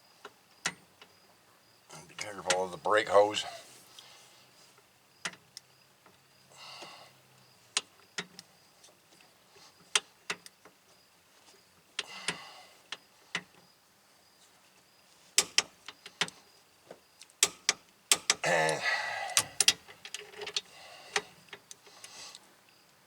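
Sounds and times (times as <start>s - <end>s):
metal clicks of torque wrench: 19.3s - 21.3s.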